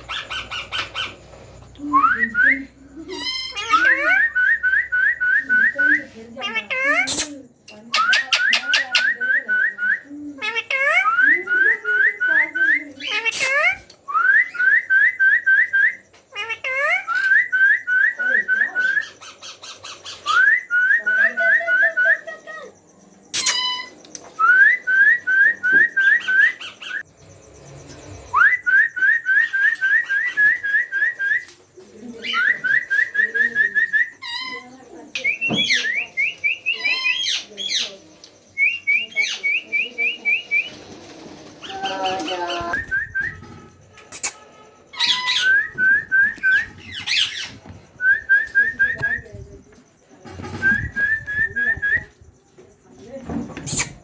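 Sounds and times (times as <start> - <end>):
raspy squawks: 0.0 - 1.4, 13.0 - 13.9, 22.2 - 24.0, 38.8 - 47.6
parrot chicks begging calls: 0.0 - 1.5, 2.2 - 4.7, 5.6 - 9.3, 10.3 - 13.9, 16.3 - 17.6, 23.4 - 24.0, 32.2 - 38.0, 38.7 - 47.8.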